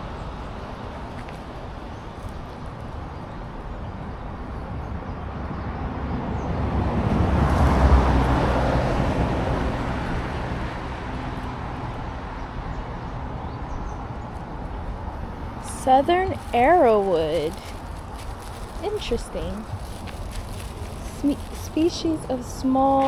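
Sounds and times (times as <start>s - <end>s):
vehicle passing by: 5.6s - 23.0s.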